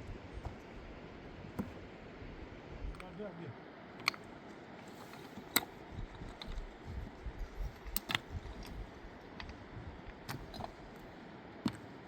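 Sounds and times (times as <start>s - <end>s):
low rumbling handling noise: 4.0s - 11.9s.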